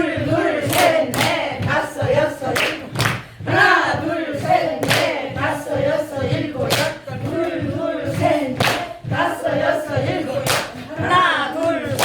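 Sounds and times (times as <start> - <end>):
voices chanting in unison: 0.0 - 12.0
sharp claps or stamps: 2.6 - 3.2.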